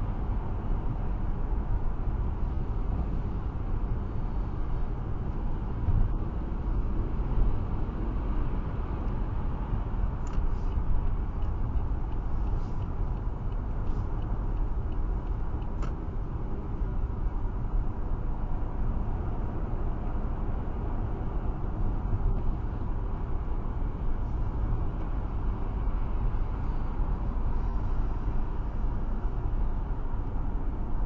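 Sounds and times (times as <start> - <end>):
tyre and engine rumble: 0.0 - 19.7.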